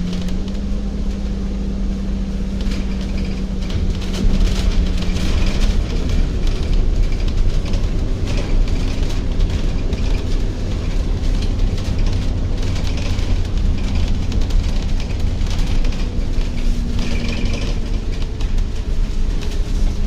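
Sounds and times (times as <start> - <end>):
vehicle rumble: 0.0 - 20.0.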